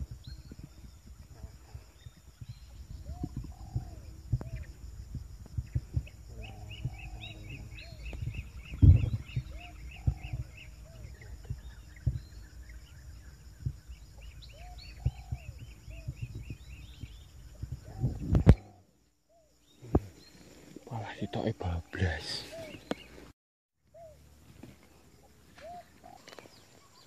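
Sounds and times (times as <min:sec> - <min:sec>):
birds whistling: 0:00.0 - 0:04.8, 0:05.6 - 0:23.3, 0:25.6 - 0:27.0
low thumps: 0:02.3 - 0:18.7
high bird chirps: 0:05.6 - 0:20.4.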